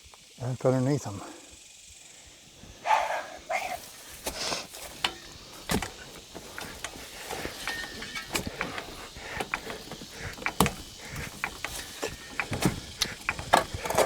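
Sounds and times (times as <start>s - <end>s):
jack metal clicks and knocks: 4.8s - 14.0s.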